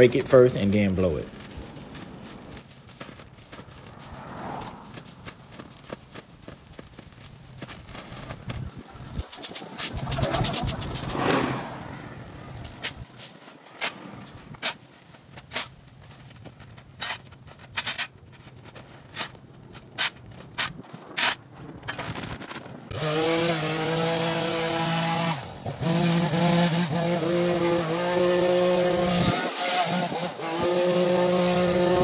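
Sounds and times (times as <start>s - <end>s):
rake scraping ground: 0.0s - 32.0s
small gas engine running: 22.9s - 32.0s.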